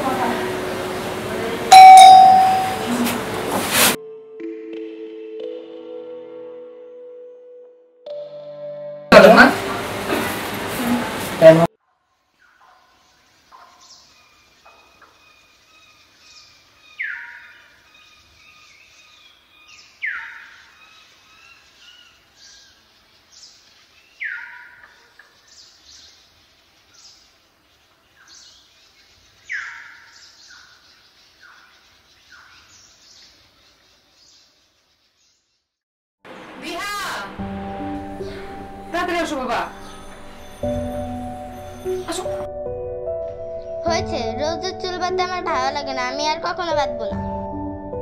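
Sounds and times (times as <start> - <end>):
birds chirping and whistling: 13.3 - 27.3, 28.2 - 34.5, 39.8 - 42.4.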